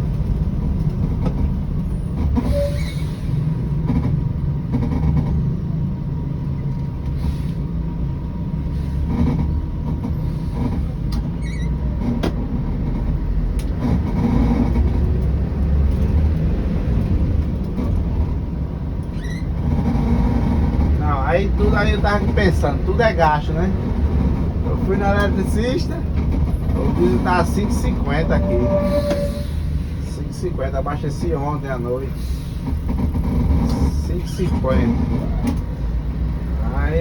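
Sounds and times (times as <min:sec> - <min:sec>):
bus diesel rumble: 0:00.0 - 0:37.0
knocks and rattles: 0:03.8 - 0:05.6.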